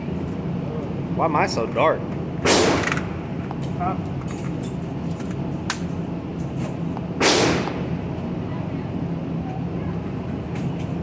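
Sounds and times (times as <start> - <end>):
steady low hum: 0.0 - 11.0
gunshot: 2.4 - 3.1, 7.2 - 7.9.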